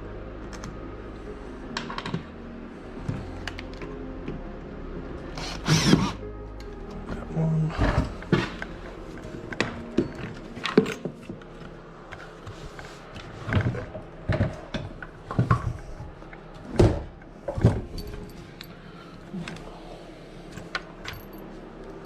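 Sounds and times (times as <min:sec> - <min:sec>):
bolts and nuts clinking: 0:08.0 - 0:12.2, 0:17.5 - 0:19.7, 0:20.5 - 0:22.0.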